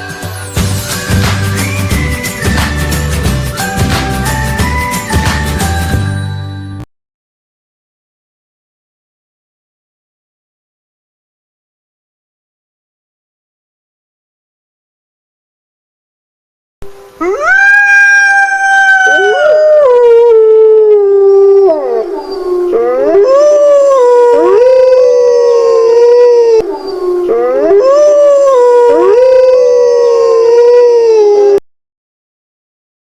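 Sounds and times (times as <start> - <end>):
canines howling: 17.2 - 31.6.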